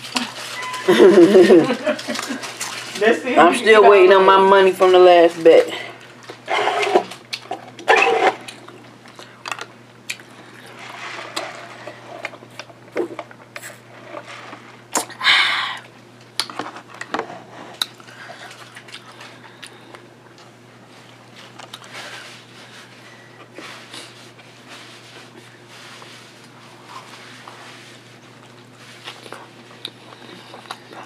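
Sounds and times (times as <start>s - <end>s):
chewing and wet mouth sounds: 6.0s - 11.4s, 17.8s - 22.0s, 28.3s - 31.0s.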